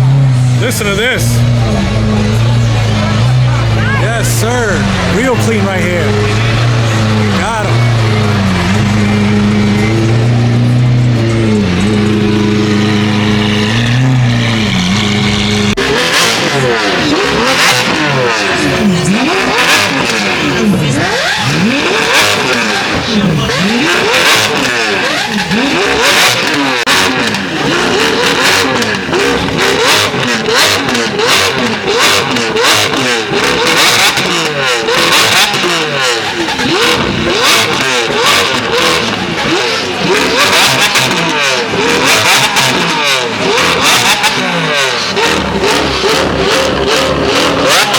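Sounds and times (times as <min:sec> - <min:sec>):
car engines revving: 0:00.0 - 0:47.9.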